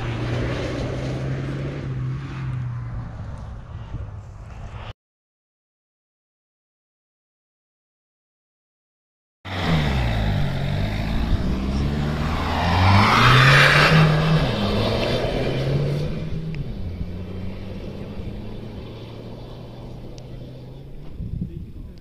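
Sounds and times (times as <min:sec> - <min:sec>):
rally car engine accelerating: 0:00.0 - 0:03.5, 0:09.5 - 0:21.5.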